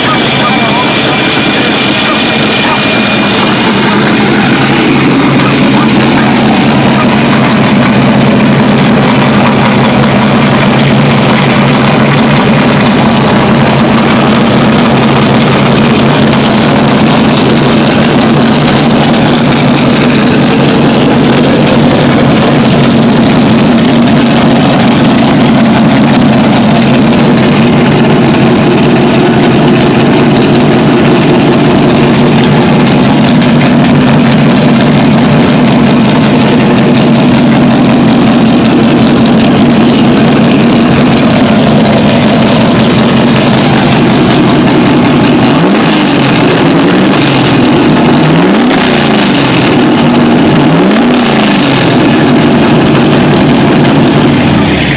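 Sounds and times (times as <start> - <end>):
truck engine idling: 0.0 - 54.9.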